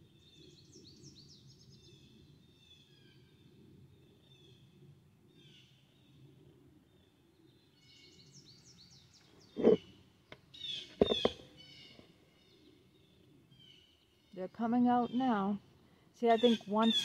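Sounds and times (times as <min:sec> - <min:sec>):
small songbirds calling: 0:00.0 - 0:04.6, 0:06.8 - 0:17.0
knocks on recording device: 0:11.0 - 0:11.4.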